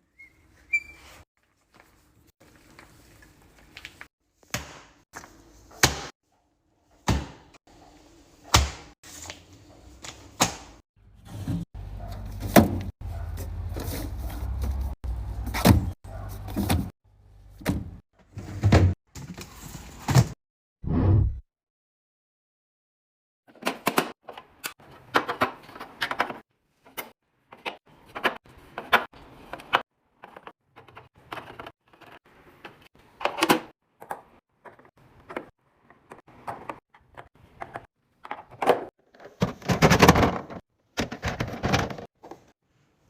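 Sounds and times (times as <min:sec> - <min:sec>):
fridge drawers and doors shutting: 0:17.6 - 0:20.4.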